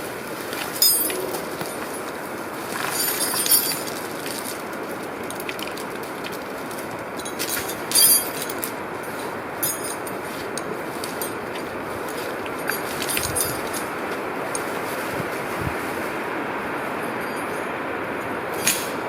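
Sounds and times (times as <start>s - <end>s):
tractor running: 0.0s - 19.0s
metallic clanks and rattles: 7.2s - 11.7s, 12.4s - 13.9s.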